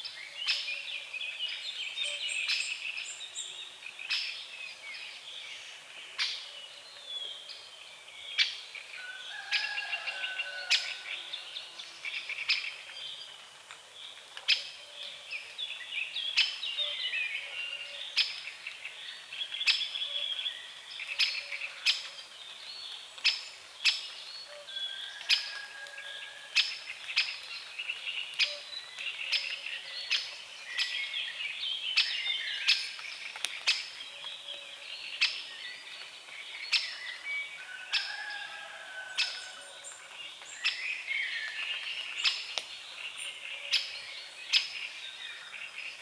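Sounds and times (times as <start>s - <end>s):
songbirds chirping and singing: 0.0s - 46.0s.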